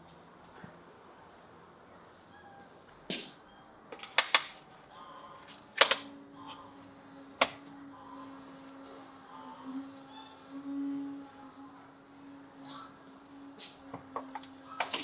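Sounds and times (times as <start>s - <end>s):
objects clicking and knocking: 14.1s - 15.0s.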